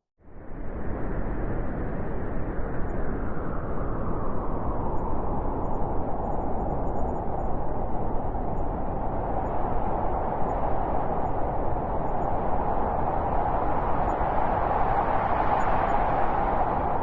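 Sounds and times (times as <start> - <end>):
blizzard wind howling: 0.3 - 17.0.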